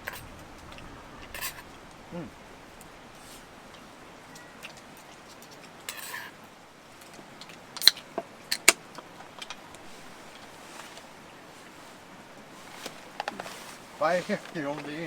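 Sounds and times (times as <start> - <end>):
utensils clinking: 1.2 - 1.8, 3.7 - 6.4.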